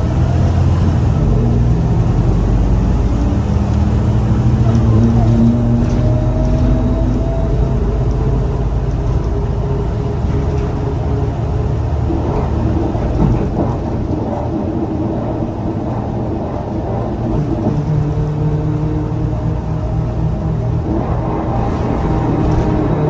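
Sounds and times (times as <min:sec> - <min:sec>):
bus engine running: 0:00.0 - 0:23.0
road and body noise: 0:00.0 - 0:23.0.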